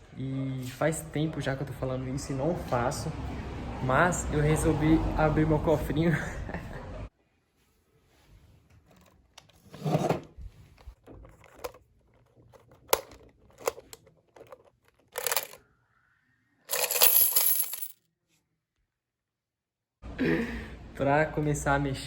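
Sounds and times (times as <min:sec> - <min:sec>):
coins clinking and spilling: 0:14.4 - 0:15.6, 0:16.7 - 0:17.9.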